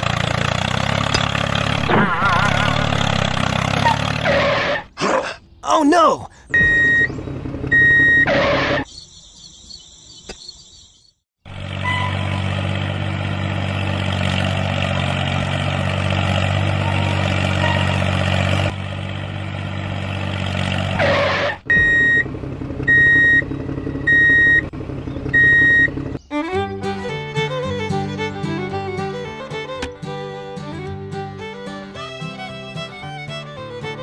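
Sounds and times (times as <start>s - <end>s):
engine running: 0.0s - 4.9s, 6.5s - 8.9s, 11.4s - 34.0s
reversing alarm beeps: 6.6s - 7.1s, 7.7s - 8.3s, 21.7s - 22.2s, 22.9s - 23.4s, 24.1s - 24.6s, 25.4s - 25.9s.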